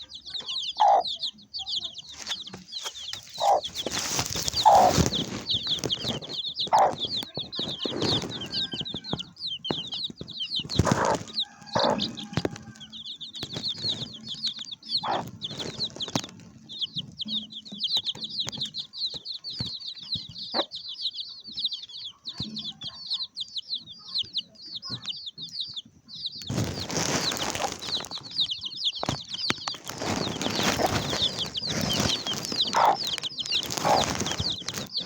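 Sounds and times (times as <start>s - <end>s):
flock of birds chirping: 0.0s - 35.0s
rustling and flapping: 2.1s - 12.8s, 13.4s - 14.4s, 15.1s - 17.2s, 26.4s - 35.0s.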